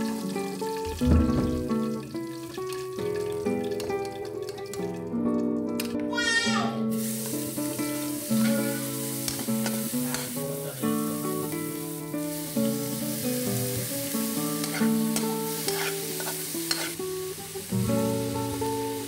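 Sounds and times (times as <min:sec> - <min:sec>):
vegetables sizzling in hot oil: 0:00.0 - 0:05.2, 0:05.8 - 0:19.0
background music: 0:00.0 - 0:19.0
spatula scraping metal wok: 0:08.2 - 0:10.4, 0:14.2 - 0:17.1.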